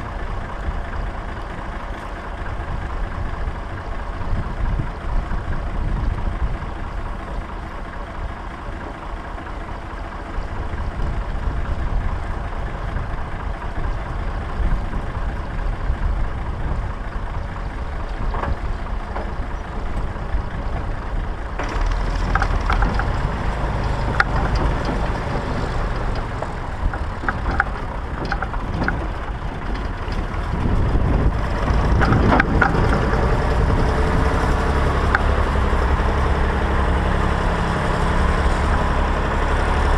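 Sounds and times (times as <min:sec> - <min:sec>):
tractor engine running: 0:00.0 - 0:39.9
irregular clanks and rattles: 0:17.0 - 0:36.1.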